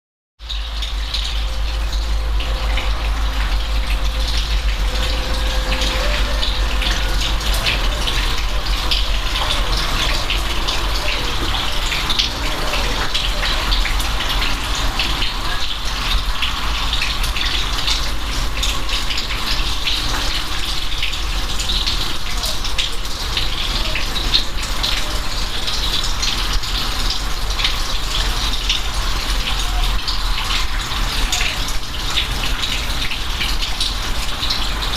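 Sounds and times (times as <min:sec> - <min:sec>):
constant low rumble: 0:00.4 - 0:20.9
steady rain falling: 0:00.4 - 0:34.9.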